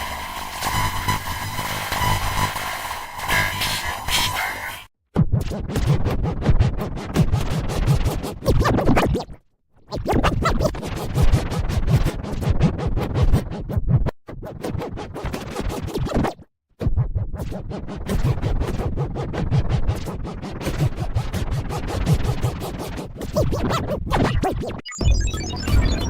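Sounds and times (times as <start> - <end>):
stuttering electronic music: 0.0 - 4.9, 24.9 - 26.0.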